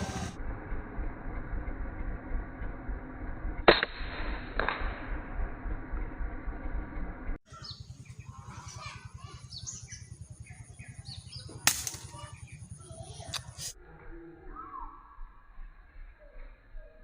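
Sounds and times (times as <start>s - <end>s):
air rifle shot: 3.7s - 5.0s
small birds chirping: 7.5s - 13.8s.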